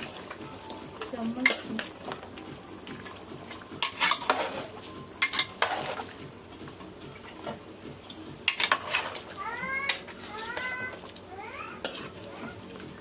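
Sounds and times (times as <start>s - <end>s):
chicken sizzling in oil: 0.0s - 13.0s
utensil scraping and clinking on pot: 1.0s - 2.2s, 2.9s - 6.2s, 8.4s - 12.9s.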